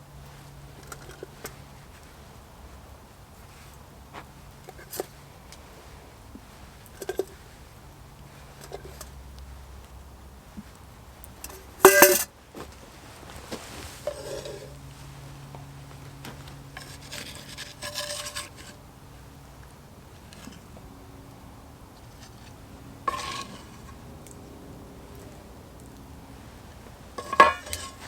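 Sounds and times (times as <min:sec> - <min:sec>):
metal cookware clinking and scraping: 0:11.4 - 0:12.3, 0:14.0 - 0:14.7, 0:16.8 - 0:18.7, 0:23.1 - 0:24.0, 0:27.2 - 0:28.0
loud ringing clatter: 0:11.8 - 0:12.3, 0:27.2 - 0:28.0.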